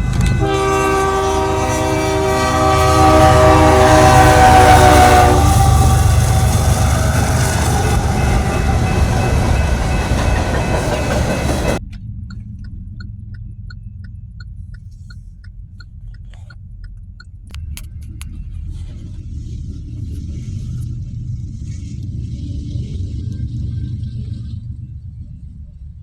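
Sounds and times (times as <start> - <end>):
freight train passing: 0.0 - 11.8
low rumble: 0.0 - 26.0.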